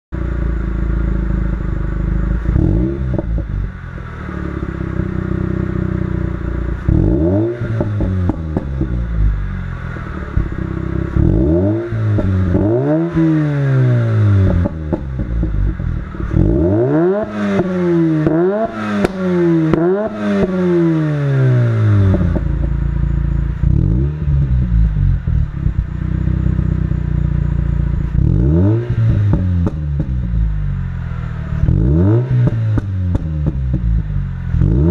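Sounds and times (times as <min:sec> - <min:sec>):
rotary engine idling and revving: 0:00.1 - 0:34.9.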